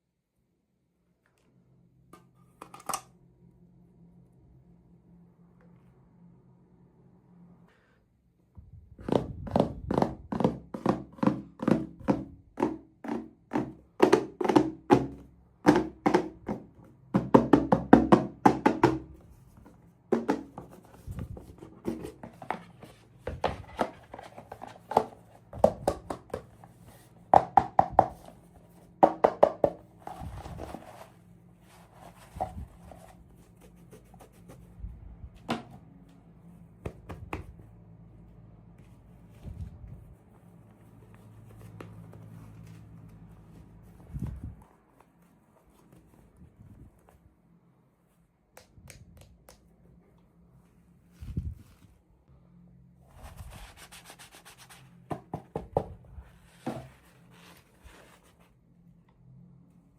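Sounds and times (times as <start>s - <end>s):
hollow plastic knocks and taps: 9.0s - 19.2s.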